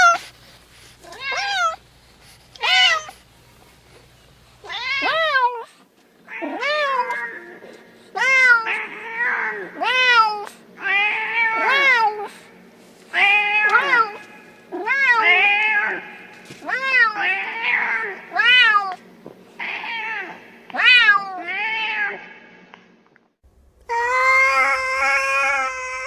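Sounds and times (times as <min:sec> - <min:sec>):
cat meowing: 0:01.0 - 0:01.8, 0:02.6 - 0:03.1, 0:04.6 - 0:05.6, 0:23.9 - 0:26.0.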